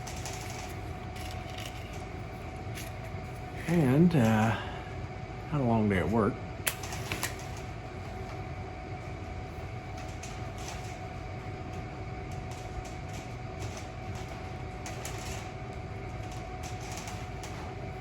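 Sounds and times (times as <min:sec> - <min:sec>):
small clicks and rustles: 0:00.0 - 0:02.1, 0:09.9 - 0:18.0
mechanical hum and rumble: 0:00.0 - 0:18.0
thin constant whine: 0:00.0 - 0:18.0.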